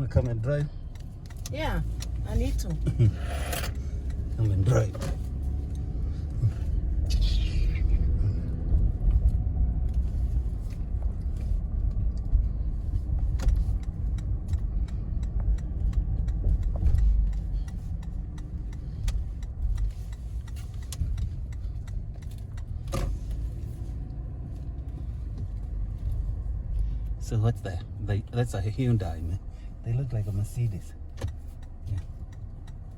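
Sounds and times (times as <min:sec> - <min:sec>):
engine and tyre rumble: 0:00.0 - 0:32.9.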